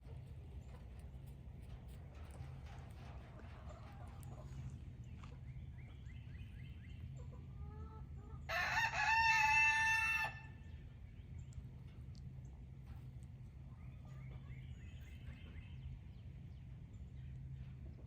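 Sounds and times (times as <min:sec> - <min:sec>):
chicken calls: 0:07.0 - 0:10.7
rooster crowing: 0:08.5 - 0:10.5.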